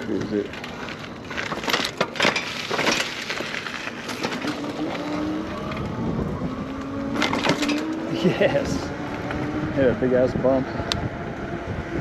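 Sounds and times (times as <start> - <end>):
bike rattling over bumps: 0.0 - 10.6
bike tyre noise: 0.0 - 12.0
wind on microphone: 4.7 - 12.0.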